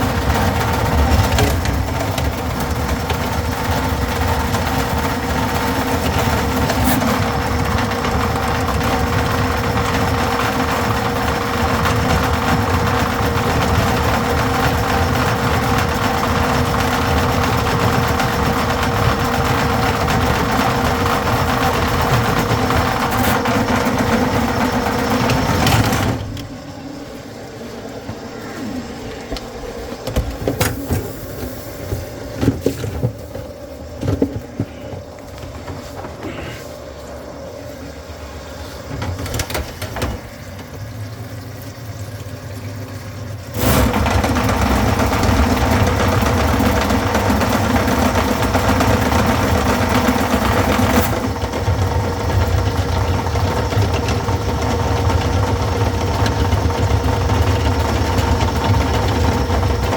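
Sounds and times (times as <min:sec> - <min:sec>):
drain cleaning machine motor hum: 0:00.0 - 0:59.9
handling noise: 0:21.2 - 0:38.0.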